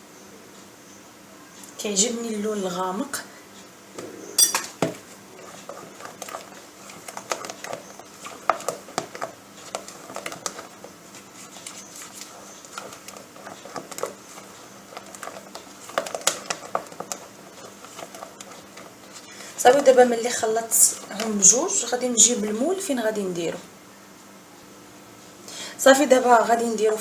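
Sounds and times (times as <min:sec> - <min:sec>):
utensil tapping bowl: 0:04.0 - 0:05.0
utensil stirring thick mixture: 0:04.8 - 0:22.0.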